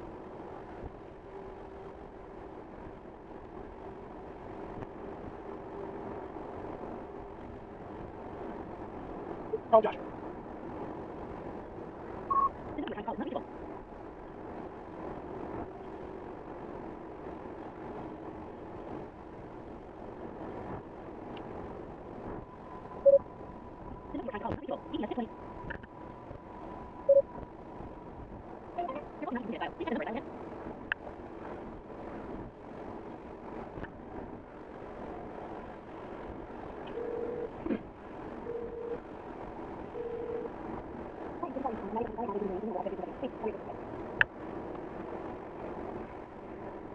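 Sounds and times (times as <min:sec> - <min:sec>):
road and tyre noise in car: 0:00.0 - 0:46.9
vehicle noise: 0:00.0 - 0:46.9
electronic beep: 0:12.3 - 0:13.0, 0:23.0 - 0:23.2.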